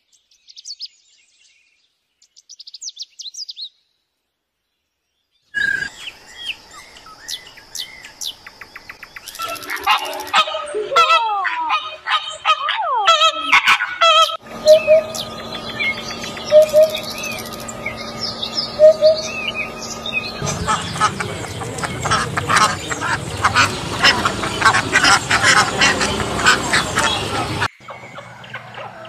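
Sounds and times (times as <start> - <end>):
hoopoe hooting call: 9.3 - 29.0
flamingo honking: 9.4 - 29.0
faint bird chirping: 14.5 - 29.0
duck rapid clicks and calls: 20.5 - 27.6.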